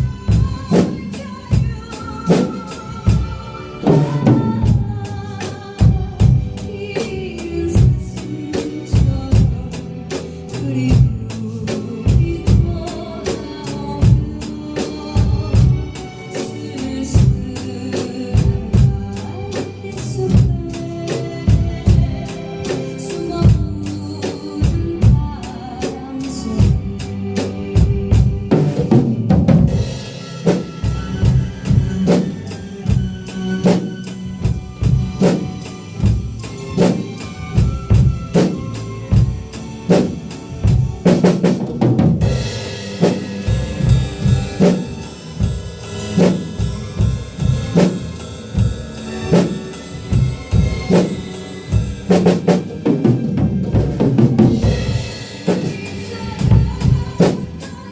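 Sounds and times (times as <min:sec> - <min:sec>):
drum kit beat: 0:00.0 - 0:57.9
recorded song accompaniment: 0:00.0 - 0:57.9.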